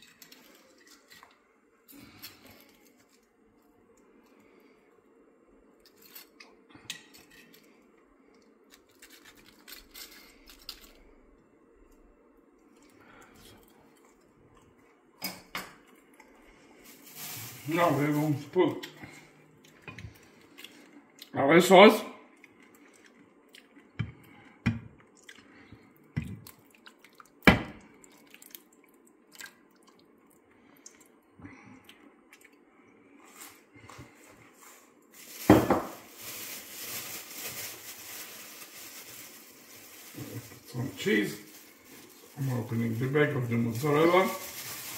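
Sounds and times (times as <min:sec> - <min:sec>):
sauce plopping and dripping: 0:26.1 - 0:31.2.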